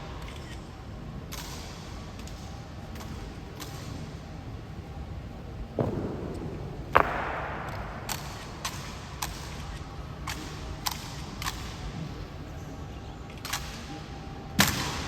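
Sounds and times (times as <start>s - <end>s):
loud echoing foot stamp: 5.6s - 9.6s.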